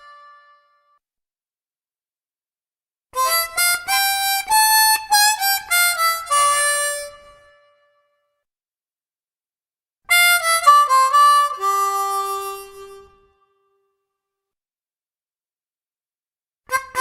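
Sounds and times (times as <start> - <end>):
harmonica riff: 3.2 - 7.8, 10.1 - 13.4, 16.7 - 17.0.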